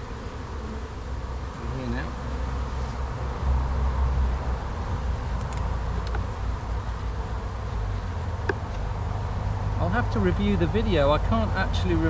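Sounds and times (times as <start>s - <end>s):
honey bees buzzing: 0.0s - 12.0s
faint clicks: 5.3s - 6.3s.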